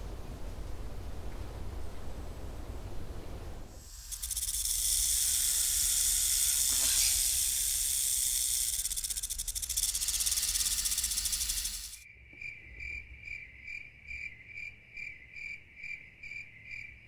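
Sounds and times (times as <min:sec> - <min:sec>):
snake hissing: 0:03.7 - 0:12.0.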